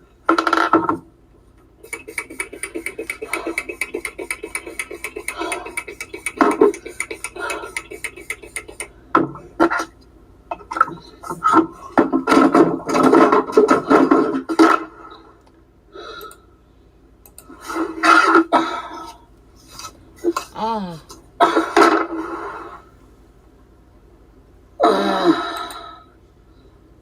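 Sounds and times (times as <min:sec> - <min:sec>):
objects clattering and knocking: 0:09.2 - 0:15.0
person talking: 0:20.4 - 0:21.2.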